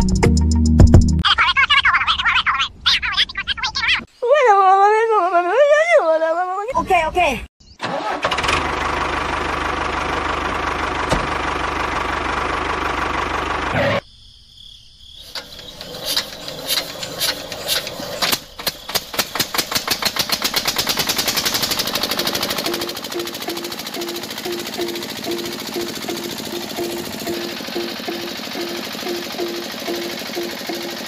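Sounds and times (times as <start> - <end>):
engine running: 7.8 - 14.0, 15.3 - 31.0
regular knocking speeding up: 15.3 - 31.0.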